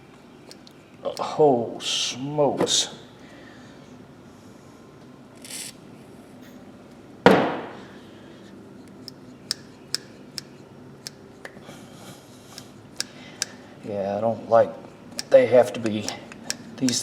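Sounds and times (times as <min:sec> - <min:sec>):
pliers clicking: 0:12.6 - 0:13.6, 0:15.1 - 0:17.0.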